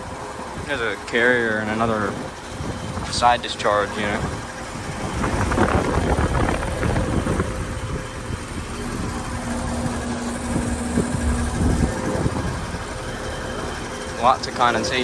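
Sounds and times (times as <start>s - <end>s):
compressor electrical hum: 0.0s - 15.0s
fan noise: 0.0s - 15.0s.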